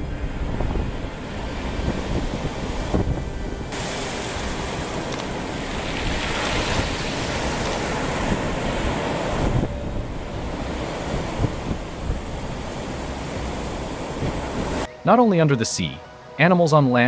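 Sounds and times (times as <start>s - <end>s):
surf washing on beach: 0.0s - 14.9s
wind buffeting microphone: 0.0s - 14.9s.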